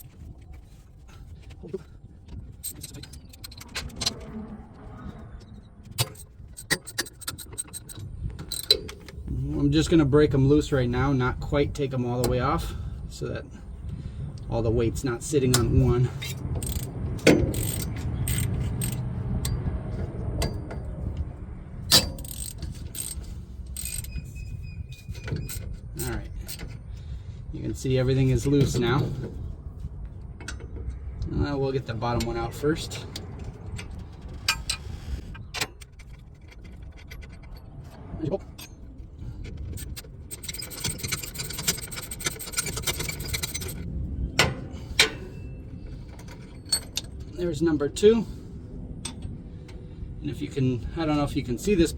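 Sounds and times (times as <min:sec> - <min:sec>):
wrench clicking on metal bolts: 0:02.6 - 0:04.2, 0:05.9 - 0:09.2, 0:15.4 - 0:20.9, 0:21.9 - 0:24.4, 0:25.0 - 0:26.8, 0:39.6 - 0:43.8.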